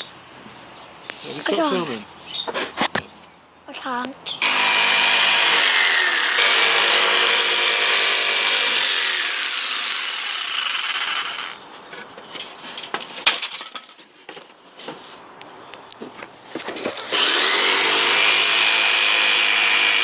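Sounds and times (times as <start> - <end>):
power saw cutting wood: 4.4 - 11.6, 17.0 - 20.0.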